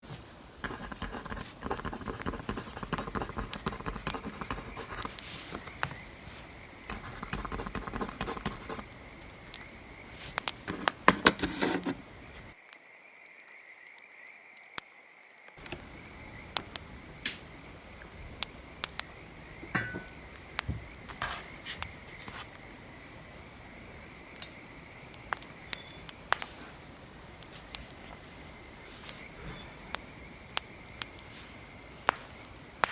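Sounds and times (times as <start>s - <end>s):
pencil scratching on paper: 0.6s - 9.0s, 10.2s - 12.5s
wood fire crackling and popping: 3.2s - 11.4s, 15.6s - 23.7s, 24.3s - 32.9s
knocks and rustles: 19.6s - 22.5s.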